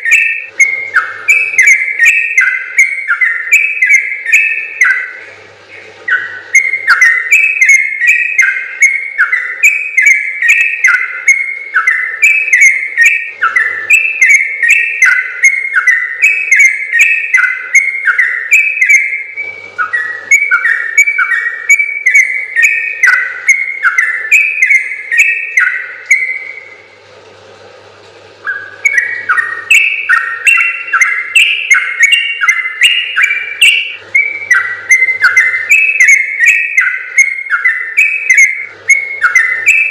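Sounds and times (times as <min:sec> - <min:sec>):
bulbul singing bubbly notes: 0:28.3 - 0:39.9.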